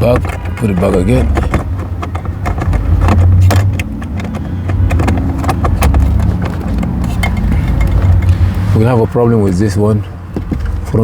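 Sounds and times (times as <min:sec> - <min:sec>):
clicks and knocks of handled device: 0:00.0 - 0:08.3
steady low rumble: 0:01.3 - 0:09.8.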